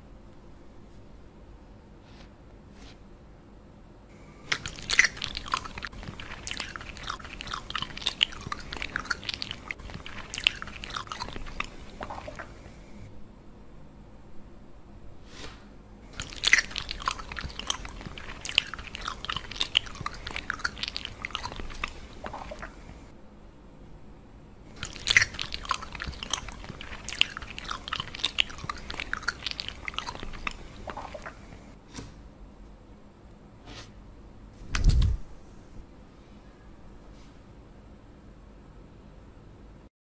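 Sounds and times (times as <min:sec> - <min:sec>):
crunchy chewing: 0:04.2 - 0:13.1, 0:16.1 - 0:23.1, 0:24.7 - 0:31.7
wet mouth clicks: 0:04.4 - 0:12.7, 0:16.2 - 0:23.0, 0:24.7 - 0:31.6.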